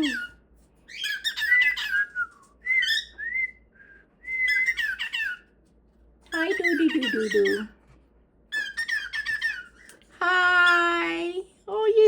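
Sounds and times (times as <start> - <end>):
bird chirping and whistling: 0.0 - 3.5, 4.3 - 5.5, 6.3 - 7.7, 8.5 - 9.9.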